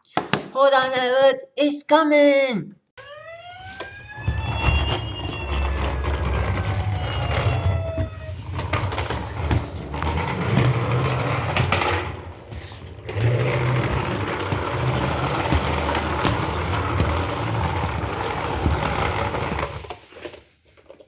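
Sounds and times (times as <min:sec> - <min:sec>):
faint siren-like tones: 0:03.0 - 0:09.2.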